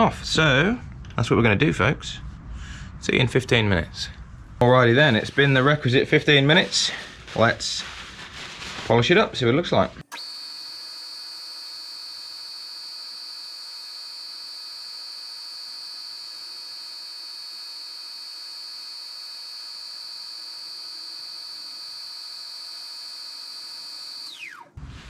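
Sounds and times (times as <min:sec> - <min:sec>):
lathe motor whining: 0:10.0 - 0:25.0.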